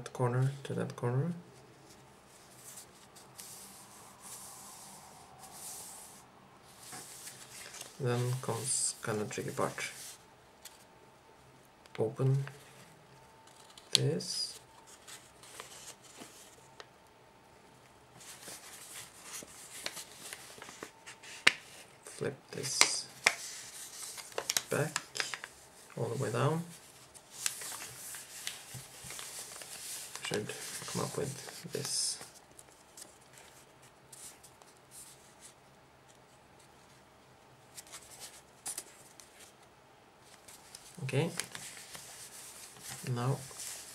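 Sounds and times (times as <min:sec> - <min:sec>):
paper rustling and crinkling: 0:06.7 - 0:10.9, 0:12.3 - 0:16.9, 0:18.1 - 0:22.0, 0:22.6 - 0:37.0, 0:37.7 - 0:43.9.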